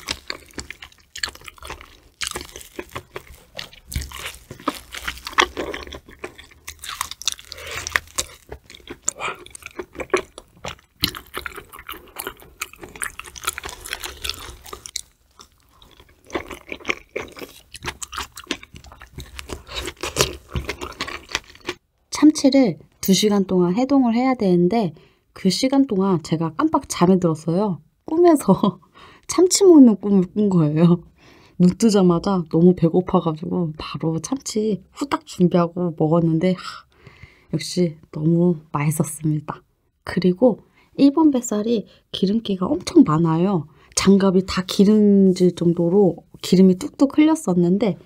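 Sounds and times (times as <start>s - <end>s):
close chewing and mouth sounds: 0.0s - 21.8s.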